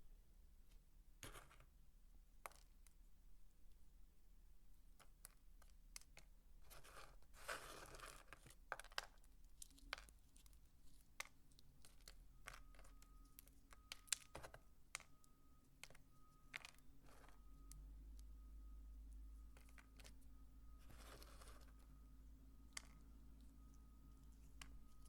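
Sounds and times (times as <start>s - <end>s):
dry soap crumbling rustle: 5.6s - 18.2s, 19.5s - 22.0s.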